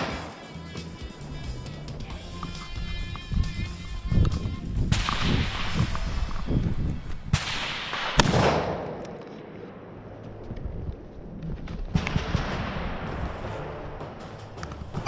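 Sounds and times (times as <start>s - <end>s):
rifle shots: 0.0s - 0.6s, 4.9s - 6.5s, 7.1s - 10.0s, 11.9s - 13.7s
background music: 0.0s - 5.8s, 12.0s - 15.0s.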